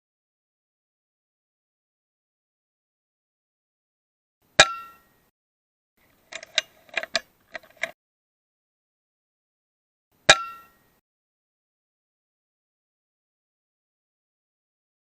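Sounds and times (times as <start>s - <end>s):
rifle action clicking: 6.1s - 8.0s.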